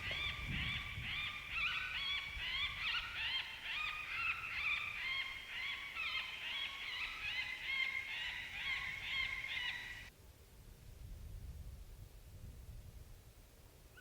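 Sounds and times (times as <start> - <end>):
coyotes yipping and howling: 0.0 - 10.1.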